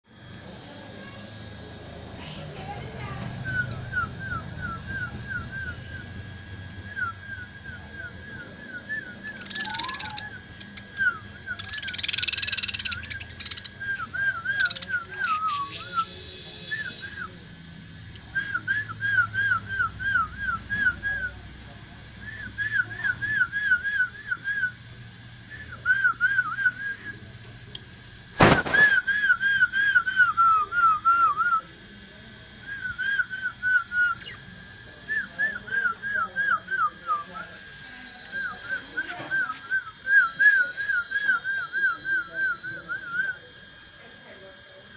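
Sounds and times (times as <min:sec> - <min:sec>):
warbling whistle: 0:03.4 - 0:17.4, 0:32.6 - 0:43.9
lovebirds chirping: 0:08.7 - 0:16.1.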